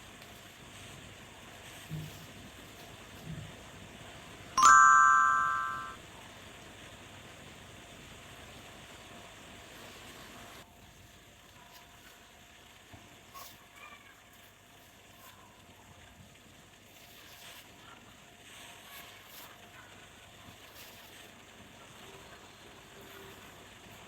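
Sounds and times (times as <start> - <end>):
bright bell ding: 4.6 - 6.0.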